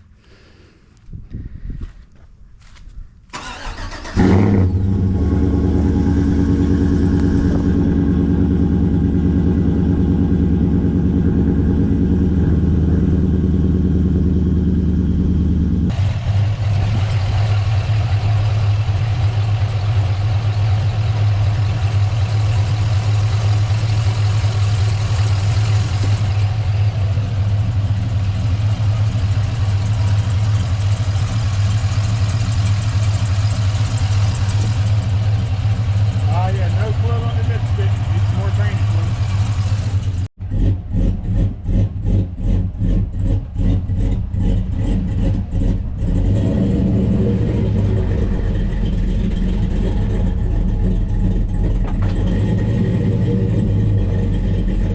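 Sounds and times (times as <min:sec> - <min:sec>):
engine cranking: 0:03.3 - 0:05.0, 0:15.9 - 0:54.9
engine idling: 0:03.3 - 0:54.9.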